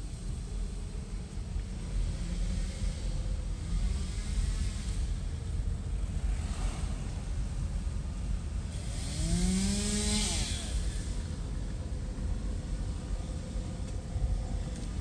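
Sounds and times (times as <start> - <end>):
wind rumble on microphone: 0.0 - 15.0
vehicle engine passing by: 8.8 - 11.0.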